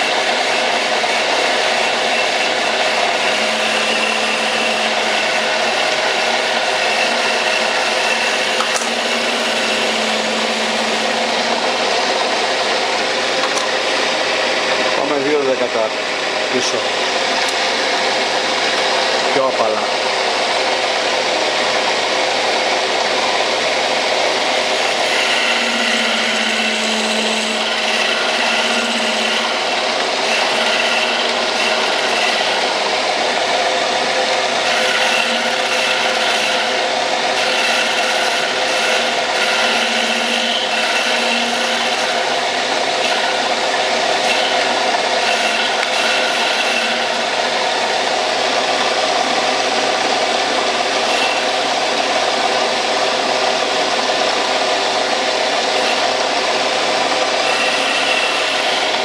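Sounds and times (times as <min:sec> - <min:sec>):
high whine: 0:00.0 - 0:59.0
metal lathe cutting hiss: 0:00.0 - 0:59.0
low hum: 0:02.8 - 0:15.0.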